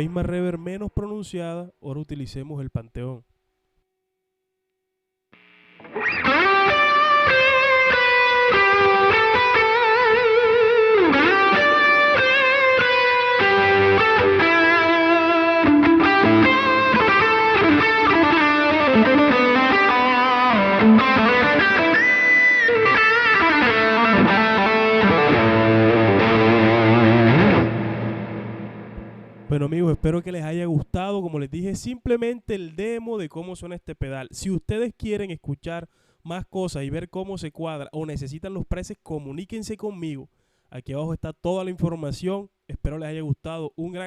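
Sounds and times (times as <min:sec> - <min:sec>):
overdriven electric guitar melody: 0:05.8 - 0:29.7.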